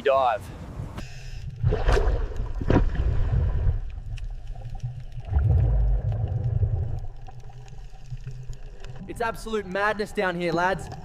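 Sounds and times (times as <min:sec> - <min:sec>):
gurgling bubbles: 0:01.6 - 0:11.0.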